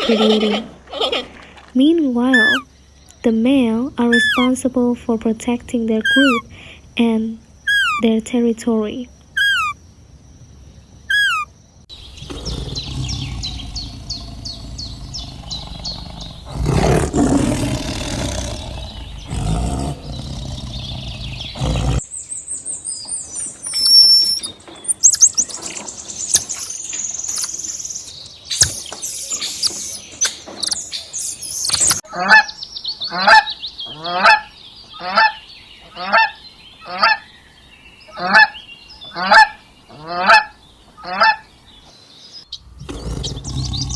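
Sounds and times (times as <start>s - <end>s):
high repeated bird chirps: 2.2s - 3.3s, 4.0s - 4.6s, 6.0s - 6.4s, 7.6s - 8.2s, 9.3s - 9.8s, 11.1s - 35.4s
waterfowl calls: 2.3s - 2.6s, 7.7s - 8.0s, 9.4s - 9.8s, 11.1s - 11.5s, 32.1s - 37.3s, 38.1s - 41.5s
animal calls and clicks: 2.3s - 3.2s, 4.1s - 4.6s, 7.7s - 8.0s, 9.3s - 9.8s, 11.1s - 11.5s, 12.1s - 22.1s, 23.0s - 32.4s, 42.5s - 43.9s
rough low noise: 11.9s - 22.2s.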